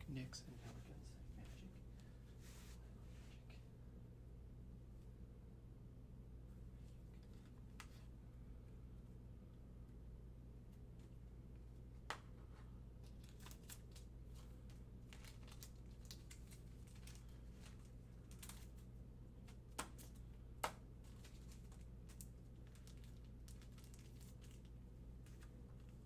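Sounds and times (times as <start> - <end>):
trading cards rustling and clicking: 12.1 - 25.9.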